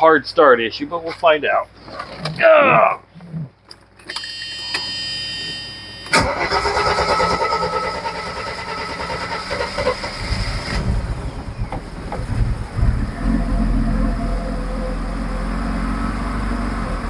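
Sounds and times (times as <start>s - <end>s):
car engine running: 6.1s - 17.0s
car starter turning over: 6.1s - 17.0s.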